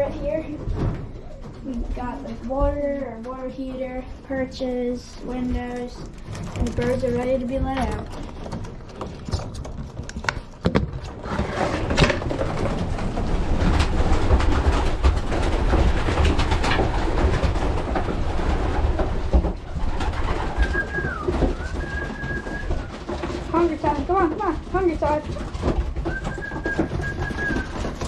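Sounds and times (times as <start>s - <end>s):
clicks and knocks: 5.8s - 28.0s
pigeons cooing: 19.7s - 23.2s, 25.9s - 28.0s.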